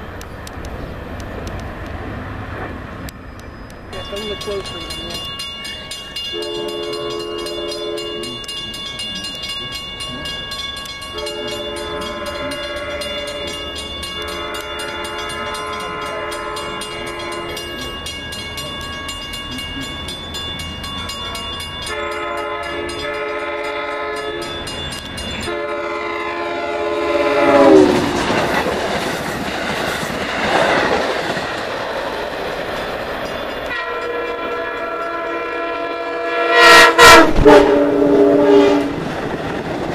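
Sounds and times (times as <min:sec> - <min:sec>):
train passing with loud rush: 0:00.0 - 0:39.9
train air horn blasts: 0:06.3 - 0:08.6, 0:11.1 - 0:17.7, 0:21.9 - 0:24.6, 0:25.5 - 0:28.2, 0:33.7 - 0:39.0.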